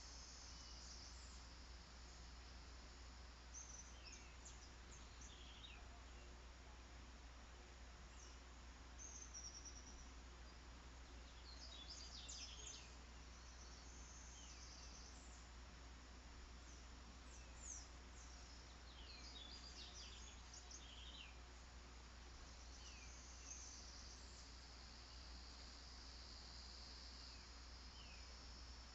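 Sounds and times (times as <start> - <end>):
high insect trill: 0.0 - 5.8, 22.2 - 28.9
low steady hum: 0.0 - 28.9
birds chirping: 9.0 - 15.5, 16.6 - 21.5.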